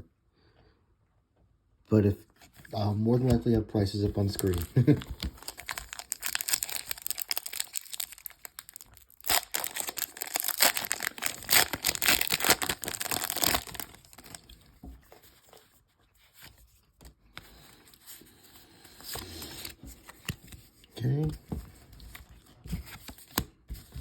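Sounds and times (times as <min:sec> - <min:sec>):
faint handling sounds: 0:02.2 - 0:24.0
foil wrapper crinkling and tearing: 0:04.1 - 0:14.6.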